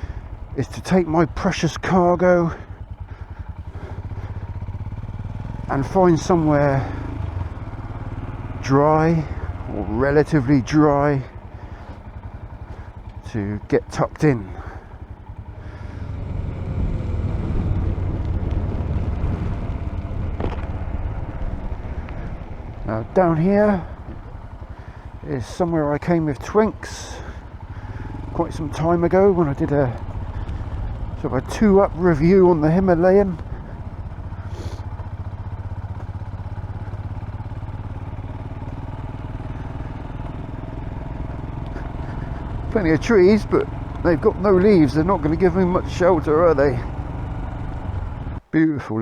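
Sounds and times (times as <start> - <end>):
motorcycle engine running: 0.0 - 48.5
wind noise: 16.9 - 22.8.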